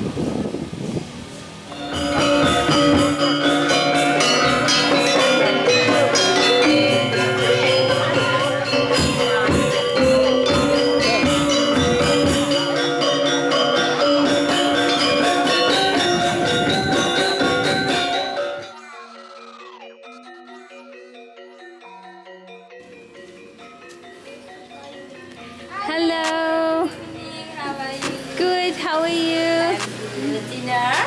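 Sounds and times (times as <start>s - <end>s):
gamelan music: 1.6s - 30.9s.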